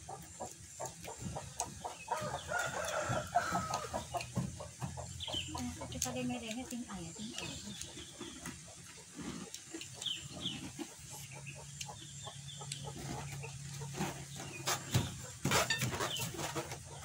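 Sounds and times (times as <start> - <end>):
chickens clucking: 0.0 - 17.0
person chewing crunchy food: 7.7 - 14.4.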